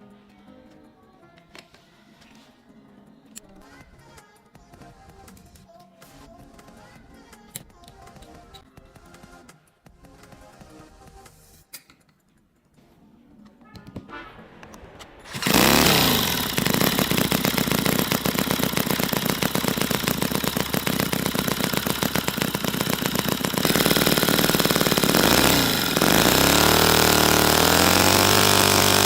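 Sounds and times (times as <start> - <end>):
model engine running: 15.2 - 29.0.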